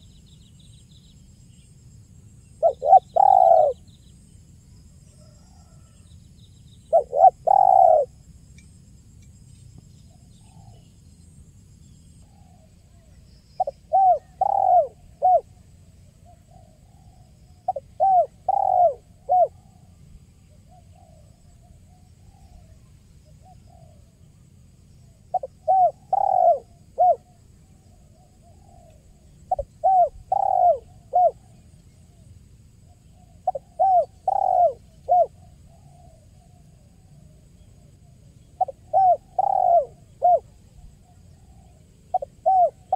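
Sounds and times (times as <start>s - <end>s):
dove cooing: 2.6s - 3.8s, 6.9s - 8.1s, 13.6s - 15.6s, 16.2s - 19.8s, 25.3s - 32.2s, 33.1s - 37.1s, 38.5s - 42.9s.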